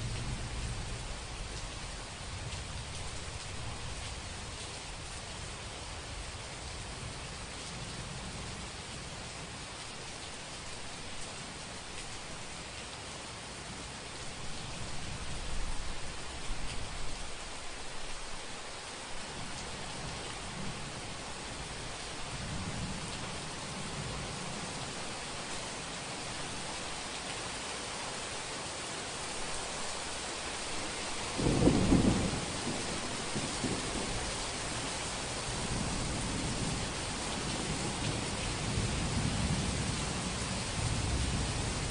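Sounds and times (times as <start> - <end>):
steady rain falling: 0.0 - 41.9
thunder clap rumbling: 31.4 - 34.3.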